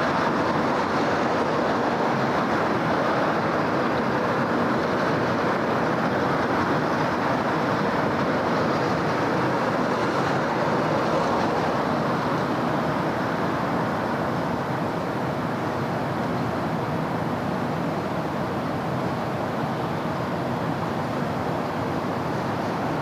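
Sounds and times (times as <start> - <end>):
city road traffic: 0.0 - 23.0.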